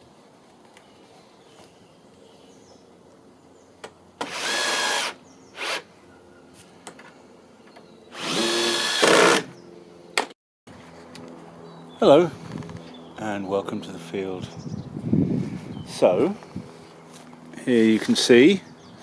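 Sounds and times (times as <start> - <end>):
power drill running: 4.2 - 5.8, 8.1 - 9.5.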